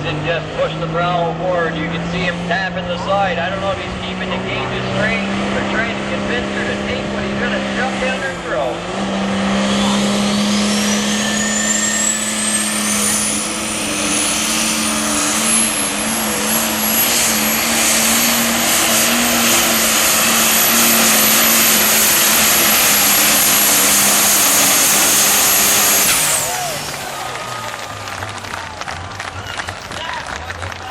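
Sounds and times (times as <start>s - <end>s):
tractor engine at full power: 0.0s - 30.9s
turbo whine: 9.1s - 27.6s.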